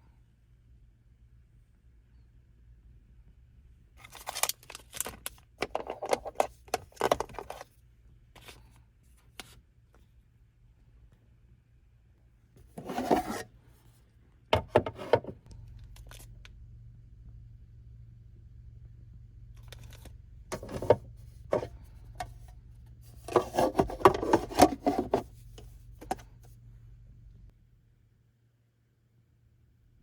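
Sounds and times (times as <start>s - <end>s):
packaging rustling and scraping: 4.0s - 7.7s, 12.6s - 13.5s, 19.7s - 26.2s.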